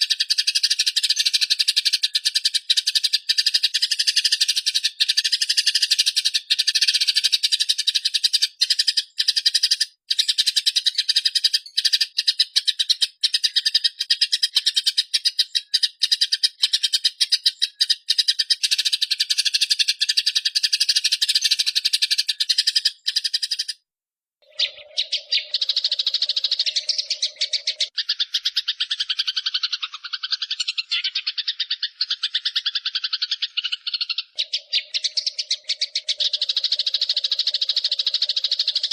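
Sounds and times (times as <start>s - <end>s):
sparrows chattering: 0.0s - 23.8s, 24.4s - 38.9s.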